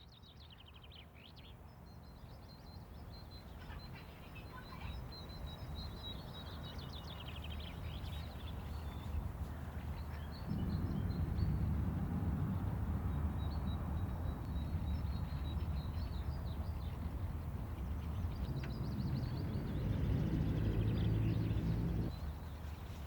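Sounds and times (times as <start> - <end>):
small birds chirping: 0.4 - 23.0
low steady rumble: 10.5 - 22.2.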